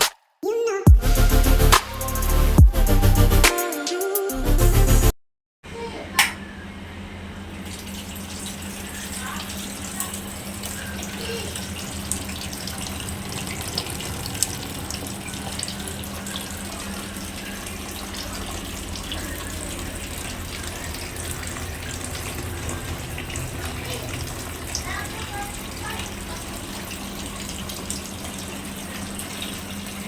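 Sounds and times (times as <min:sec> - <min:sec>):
fountain water splashing: 0:07.8 - 0:30.0
low hum: 0:11.6 - 0:28.2.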